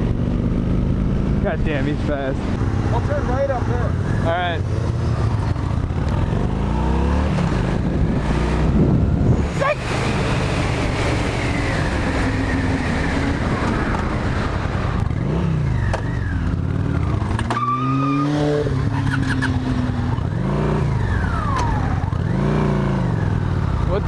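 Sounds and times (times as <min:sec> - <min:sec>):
motorcycle engine accelerating: 0:00.0 - 0:24.0
wind on microphone: 0:05.0 - 0:15.6.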